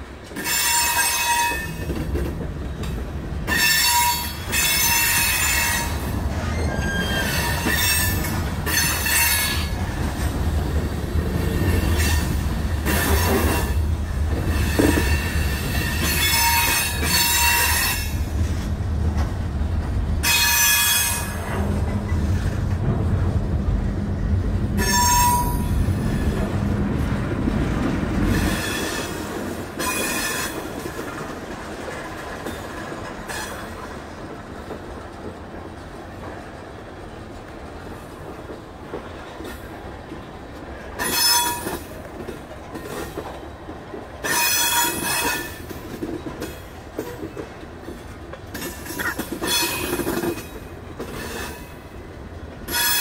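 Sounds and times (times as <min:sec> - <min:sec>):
rumble of train wheels on rail: 0:00.0 - 0:53.0
high-pitched wheel squeals: 0:03.5 - 0:09.6, 0:24.8 - 0:25.7.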